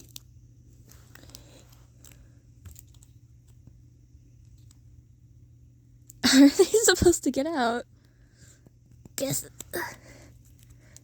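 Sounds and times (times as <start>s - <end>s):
plastic parts clicking and scraping: 0.9s - 3.2s.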